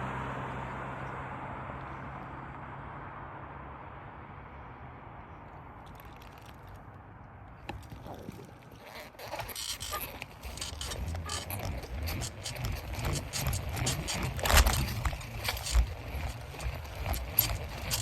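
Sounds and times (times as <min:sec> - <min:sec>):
bicycle rattling and scraping: 0:05.8 - 0:06.9, 0:07.5 - 0:18.0
heavy jolt: 0:07.8 - 0:18.0.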